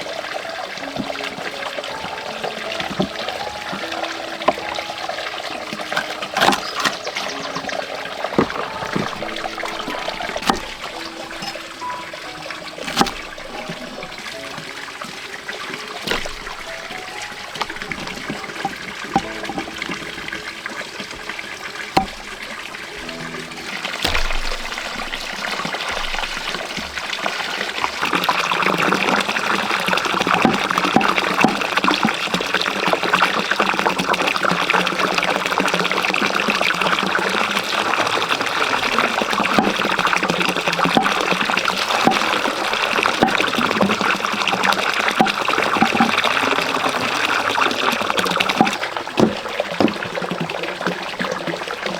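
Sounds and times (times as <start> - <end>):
water trickling and pouring: 0.0 - 51.9
sharp knocks: 8.4 - 11.9, 12.8 - 14.1, 16.0 - 20.4, 22.0 - 22.5, 24.0 - 26.3.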